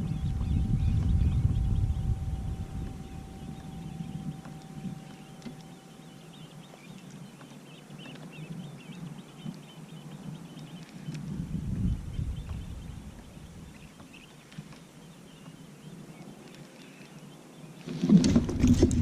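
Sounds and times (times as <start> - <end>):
low rumble: 0.0 - 6.6, 11.4 - 13.8
thin steady tone: 0.0 - 7.9
faint high chirping: 0.0 - 11.1.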